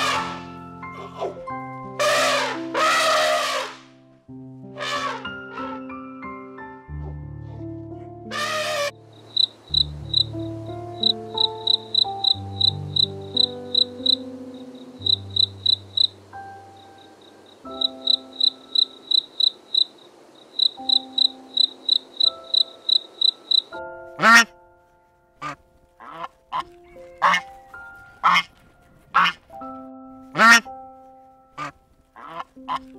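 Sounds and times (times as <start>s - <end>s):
geese honking: 0.0s - 1.3s, 2.0s - 3.9s, 4.8s - 5.9s, 8.3s - 14.2s, 20.6s - 24.6s, 25.4s - 29.5s, 30.3s - 30.7s, 31.6s - 32.9s
soft background music: 0.0s - 32.9s
crickets chirping: 8.4s - 24.4s.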